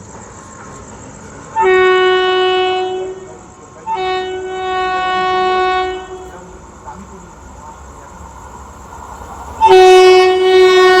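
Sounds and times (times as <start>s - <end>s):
train horn blasts: 1.6s - 6.4s, 9.6s - 11.0s.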